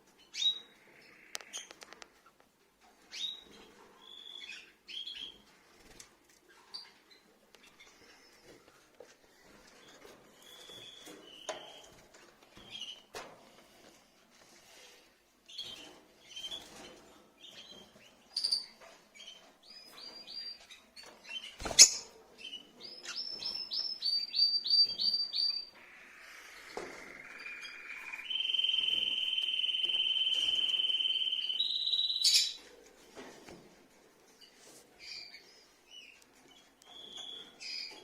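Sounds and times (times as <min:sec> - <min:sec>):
lovebirds chirping: 0:17.4 - 0:32.7.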